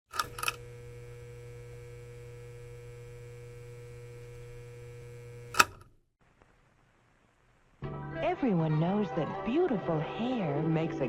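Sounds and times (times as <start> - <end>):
electrical mains hum: 0.1 - 7.7
sharp click: 5.5 - 5.9.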